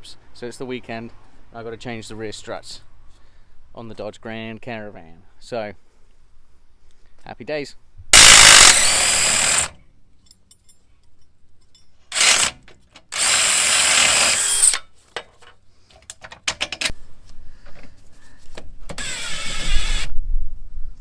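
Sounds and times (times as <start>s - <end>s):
cordless power drill: 8.2s - 9.8s, 12.1s - 14.8s, 18.9s - 20.1s.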